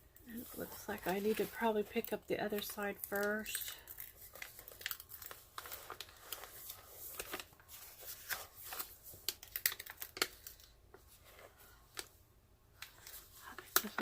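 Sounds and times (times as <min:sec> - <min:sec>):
plastic sheet crinkling: 0:00.3 - 0:12.1, 0:12.8 - 0:14.0.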